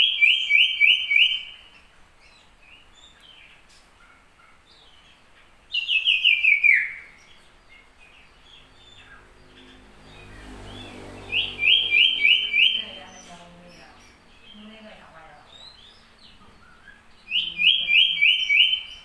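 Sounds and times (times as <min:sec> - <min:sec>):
bird singing bright notes: 0:00.0 - 0:19.0.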